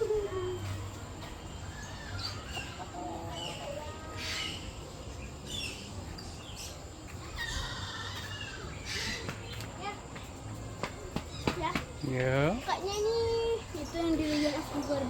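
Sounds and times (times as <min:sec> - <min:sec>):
birds chirping: 0:00.0 - 0:15.0
low clucking bird calls: 0:07.1 - 0:09.7.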